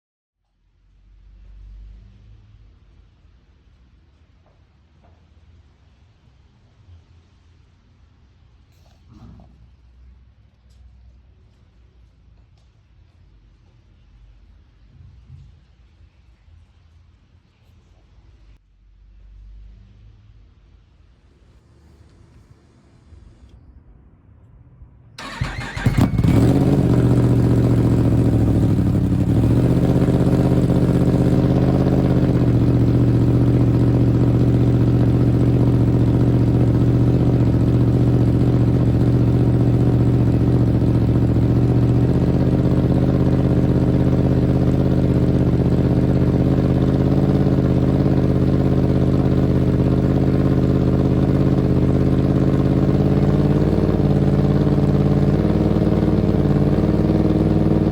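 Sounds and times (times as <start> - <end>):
motorcycle engine idling: 25.2 - 57.9.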